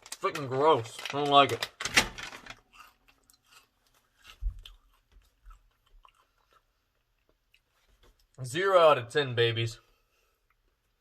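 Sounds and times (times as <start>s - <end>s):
chewing crunchy cheese crisp: 2.6s - 8.4s.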